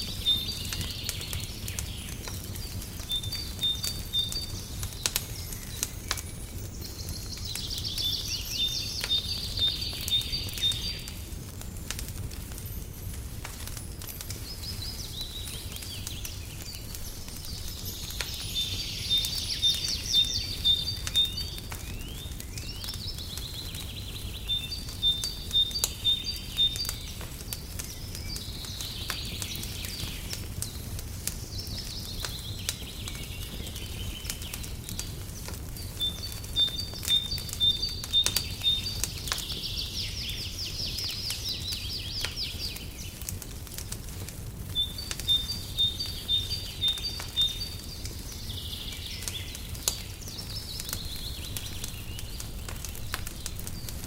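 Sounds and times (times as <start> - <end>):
songbird singing trilled phrases: 0.0 - 11.2, 14.4 - 35.1, 35.7 - 43.2, 44.7 - 54.0
wood fire crackling: 0.0 - 54.0.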